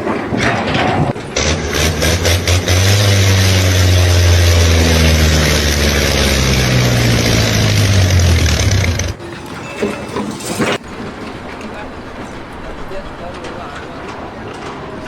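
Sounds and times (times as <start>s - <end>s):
heavy engine running: 0.0s - 9.2s.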